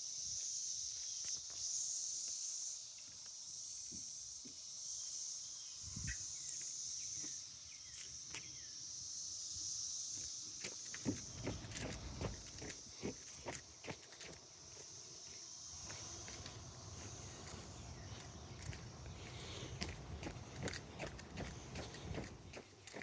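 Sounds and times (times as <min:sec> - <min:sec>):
insects buzzing: 0:00.0 - 0:23.0
footsteps on trail: 0:10.6 - 0:23.0.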